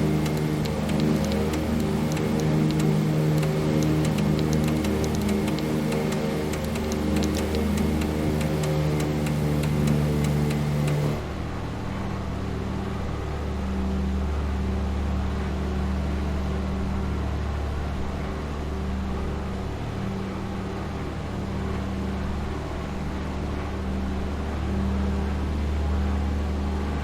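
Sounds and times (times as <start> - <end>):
high ticking layer: 0.0 - 11.2
aircraft engines droning: 0.0 - 27.0.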